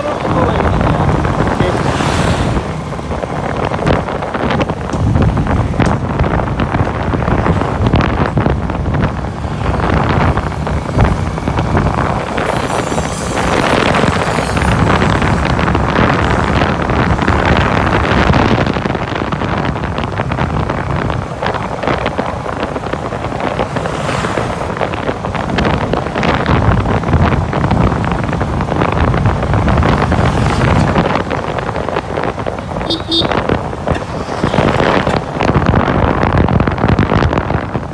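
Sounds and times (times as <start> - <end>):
wind buffeting microphone: 0.0 - 37.9.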